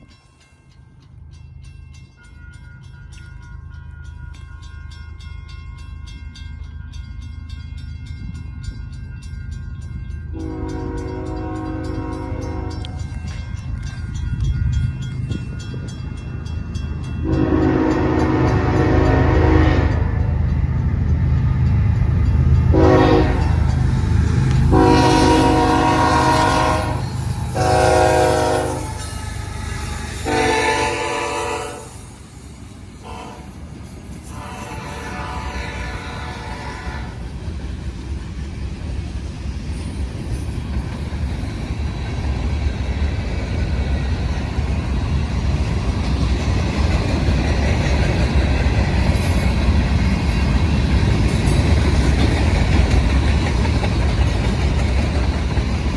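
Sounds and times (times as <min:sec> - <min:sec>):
train rumble: 0:00.0 - 0:55.9
locomotive horn blast: 0:10.4 - 0:13.0, 0:17.2 - 0:20.2, 0:22.7 - 0:23.6, 0:24.7 - 0:29.0, 0:30.2 - 0:32.0, 0:33.0 - 0:33.6, 0:34.3 - 0:37.2.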